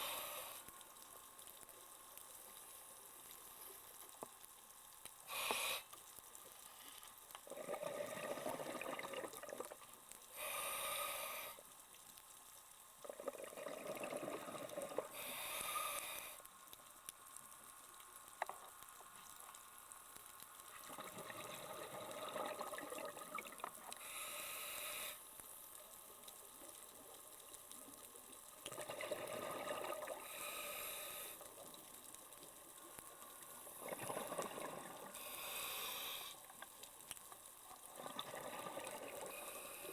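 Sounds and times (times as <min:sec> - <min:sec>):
regulator inhale hiss: 0:00.0 - 0:01.0, 0:05.2 - 0:07.1, 0:10.2 - 0:11.8, 0:15.0 - 0:16.6, 0:23.9 - 0:25.5, 0:30.1 - 0:31.7, 0:35.0 - 0:36.6, 0:39.1 - 0:39.9
exhaled bubbles underwater: 0:07.4 - 0:09.8, 0:13.0 - 0:15.2, 0:20.7 - 0:24.0, 0:28.6 - 0:30.3, 0:33.6 - 0:35.3, 0:37.8 - 0:39.5.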